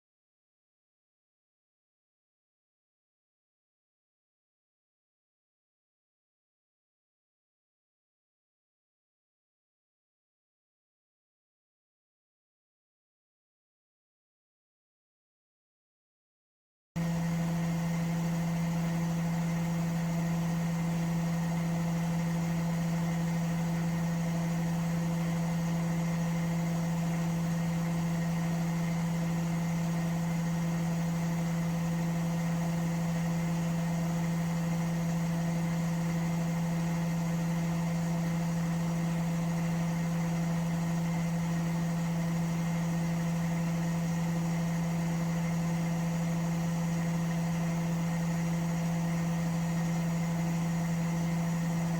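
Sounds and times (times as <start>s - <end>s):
washing machine motor hum: 17.0s - 51.9s.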